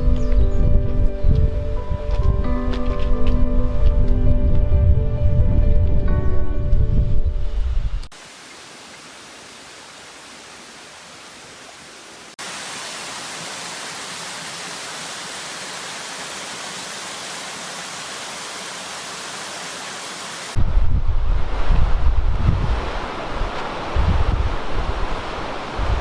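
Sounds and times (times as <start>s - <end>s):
wind buffeting microphone: 0.0s - 8.1s, 20.6s - 26.0s
heavy rain hissing: 8.1s - 20.6s.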